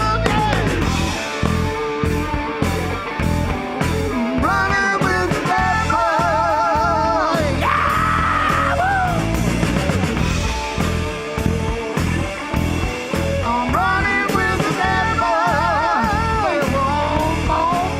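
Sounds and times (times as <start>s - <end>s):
vibrato vocal singing: 0.0s - 1.9s, 4.1s - 9.8s, 13.2s - 17.9s
rock band playing live: 0.0s - 17.9s.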